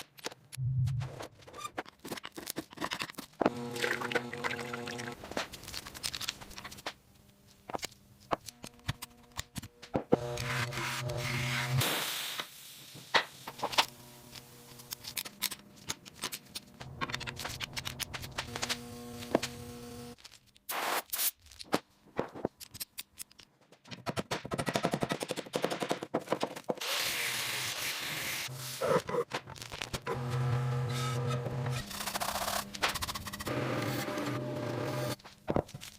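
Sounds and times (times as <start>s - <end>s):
machine humming: 3.5s - 5.2s, 30.1s - 35.2s.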